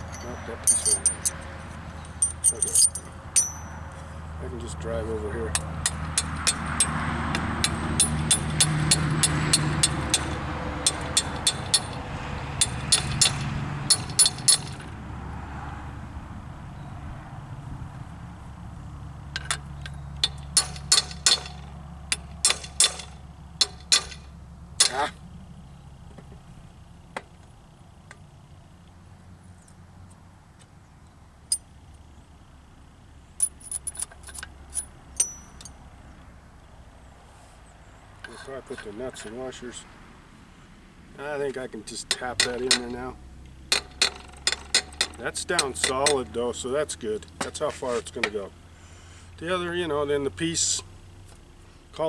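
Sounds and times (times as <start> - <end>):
metal tools clinking: 0.0 - 4.1, 5.5 - 12.0, 12.6 - 15.0, 19.3 - 25.2, 31.5 - 31.7, 33.4 - 35.8, 42.0 - 43.1, 43.7 - 46.5
hammer striking metal: 2.2 - 3.8, 12.6 - 14.9, 20.2 - 25.2, 42.1 - 43.0.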